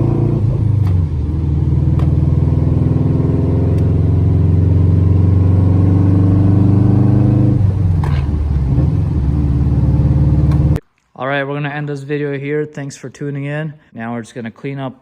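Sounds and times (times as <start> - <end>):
car engine low rumble: 0.0 - 10.8.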